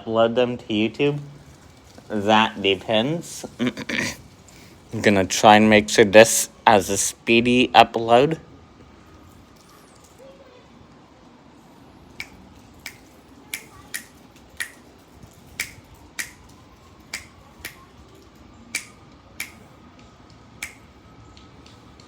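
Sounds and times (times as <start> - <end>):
faint background hum: 0.0 - 22.0
sharp snaps or clicks: 12.2 - 15.0, 15.6 - 17.8, 18.7 - 19.7, 20.3 - 22.0.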